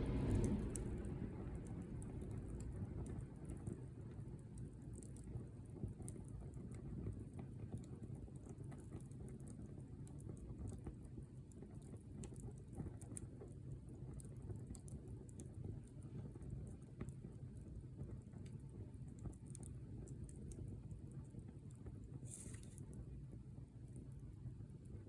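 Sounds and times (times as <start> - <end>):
low steady rumble: 0.0 - 9.1
wood fire crackling: 0.0 - 25.0.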